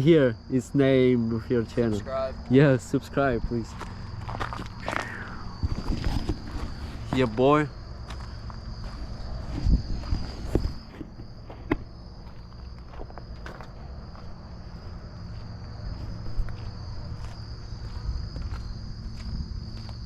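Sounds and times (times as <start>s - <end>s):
high insect chorus: 0.0s - 20.0s
knocks and thumps: 9.6s - 11.9s.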